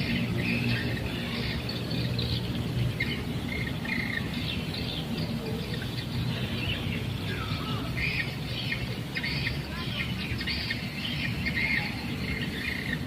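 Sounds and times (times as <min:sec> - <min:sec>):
birds chirping and calling: 0:00.0 - 0:13.0.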